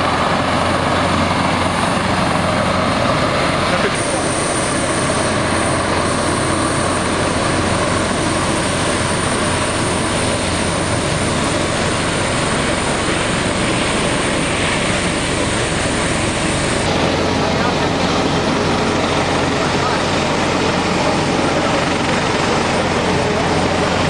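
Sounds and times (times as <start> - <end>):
aircraft engines running: 0.0 - 24.0.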